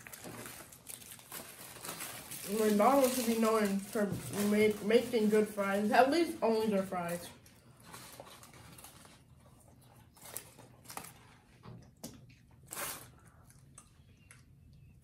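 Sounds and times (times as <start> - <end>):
chewing and mouth noises: 8.2 - 15.0.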